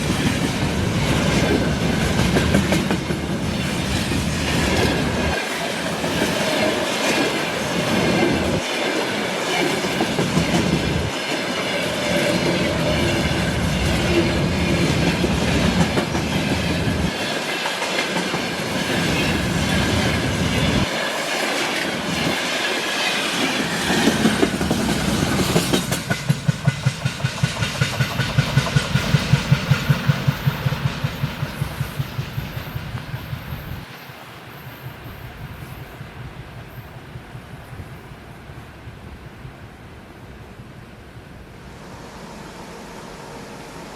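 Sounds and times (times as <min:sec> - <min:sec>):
clickety-clack of wheels: 0:00.0 - 0:05.4, 0:09.5 - 0:20.9, 0:21.6 - 0:33.9
train cars rumbling past: 0:00.0 - 0:39.3, 0:41.0 - 0:43.9.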